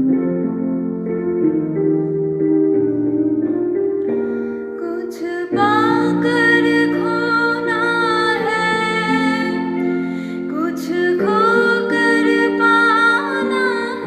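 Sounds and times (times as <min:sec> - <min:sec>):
soft instrumental music: 0:00.0 - 0:14.0
woman singing: 0:04.8 - 0:14.0.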